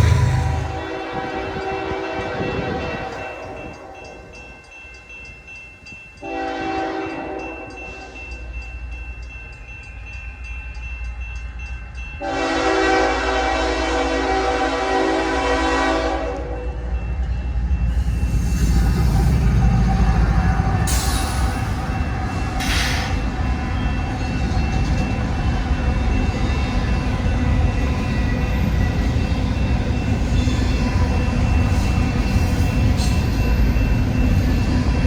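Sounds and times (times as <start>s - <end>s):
train engine and wheel rumble: 0.0s - 35.0s
locomotive air horn blasts: 6.2s - 7.5s, 12.2s - 16.6s.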